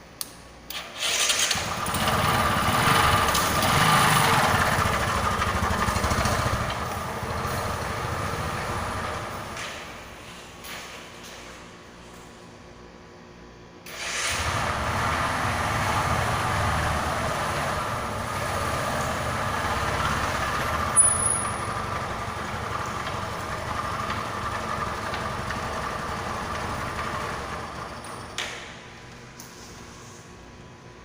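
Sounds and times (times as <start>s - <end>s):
motorcycle engine running: 1.6s - 9.6s, 14.5s - 28.1s.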